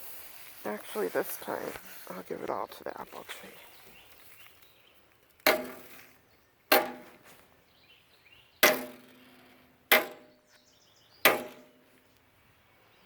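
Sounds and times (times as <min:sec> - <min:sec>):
metallic knocks on ash container: 0:05.5 - 0:05.9, 0:08.6 - 0:09.2, 0:09.9 - 0:10.3, 0:11.3 - 0:11.8.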